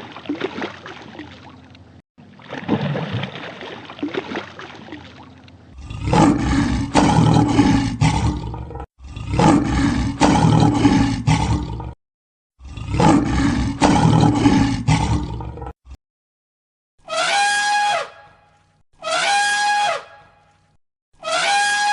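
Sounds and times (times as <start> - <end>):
large animal roaring: 5.7 - 12.0, 12.6 - 15.8.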